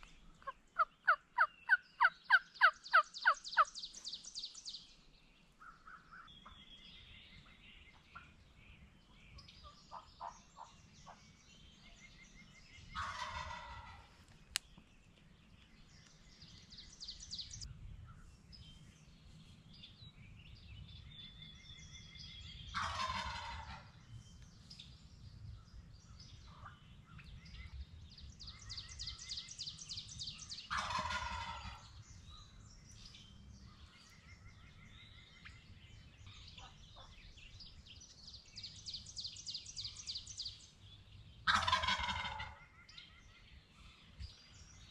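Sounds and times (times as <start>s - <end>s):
songbirds trilling and chirping: 0.0s - 44.9s
turkey gobbling: 0.4s - 3.7s, 13.0s - 14.1s, 22.8s - 23.9s, 30.7s - 31.8s, 41.4s - 42.6s.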